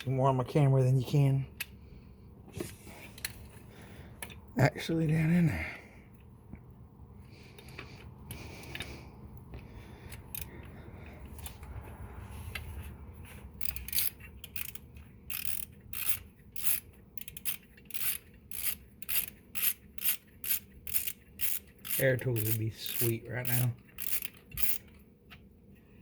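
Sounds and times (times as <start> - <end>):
faint scraping and handling: 7.2 - 14.4
socket ratchet clicking: 10.1 - 10.6, 13.6 - 25.4.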